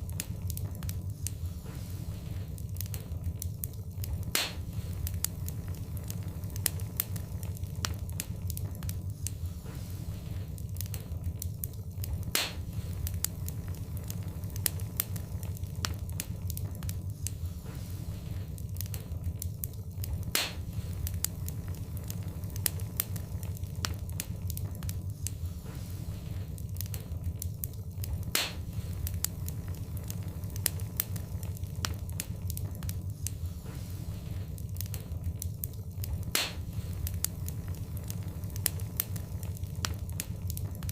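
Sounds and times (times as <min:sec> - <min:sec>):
fire pops and snaps: 0:00.0 - 0:40.9
steady low rumble: 0:00.0 - 0:40.9
wood fire crackling: 0:00.0 - 0:40.9.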